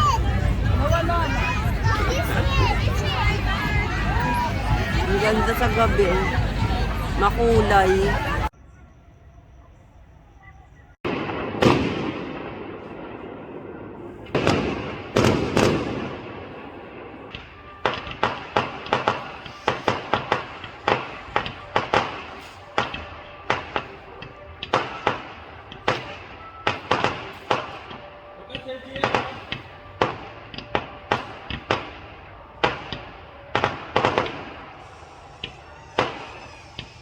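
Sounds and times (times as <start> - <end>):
fireworks booming: 11.0 - 37.0
fireworks sharp bangs: 11.0 - 37.0.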